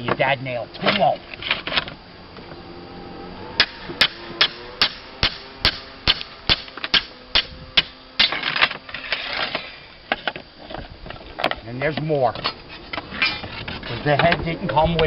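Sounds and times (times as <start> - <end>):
scraping: 12.3 - 14.9.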